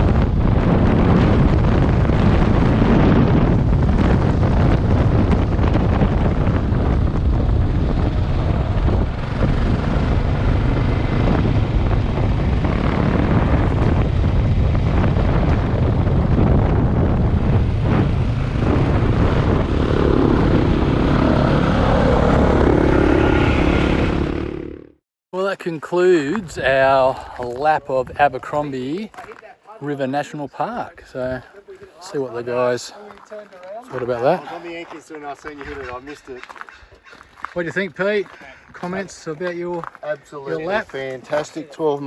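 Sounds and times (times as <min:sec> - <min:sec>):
motorcycle engine droning: 0:00.0 - 0:25.0
wind and road noise: 0:00.0 - 0:25.0, 0:25.6 - 0:42.0.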